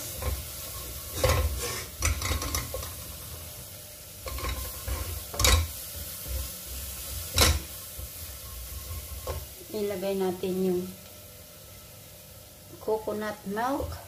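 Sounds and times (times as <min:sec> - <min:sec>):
curry paste sizzling in a pot: 0:00.0 - 0:14.0
spatula scraping a steel pot: 0:00.1 - 0:03.0, 0:04.2 - 0:06.5.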